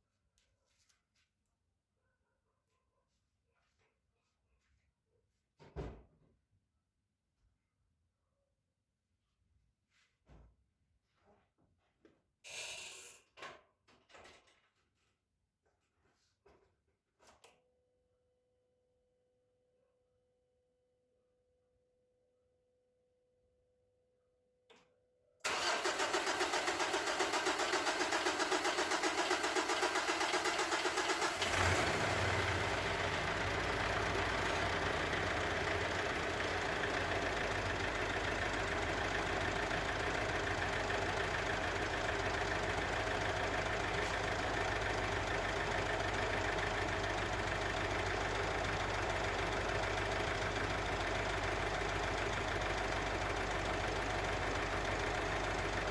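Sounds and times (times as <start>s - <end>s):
engine cranking and idling: 25.5s - 55.9s.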